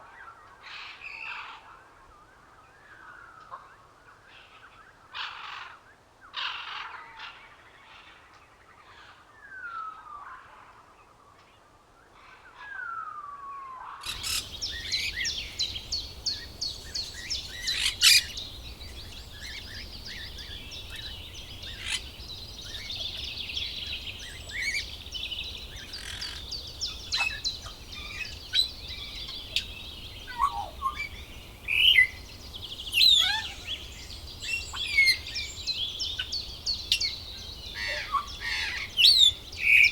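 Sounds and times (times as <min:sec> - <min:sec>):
bird calls with sliding notes: 0:14.0 - 0:39.9
chorus of bird chirps and trills: 0:14.0 - 0:39.9.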